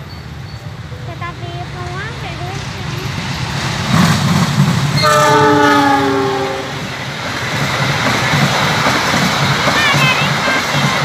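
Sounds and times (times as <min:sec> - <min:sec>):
train wheels clattering on rails: 0:00.0 - 0:11.0
locomotive engine rumble: 0:00.2 - 0:11.0
train horn chord: 0:05.0 - 0:06.9.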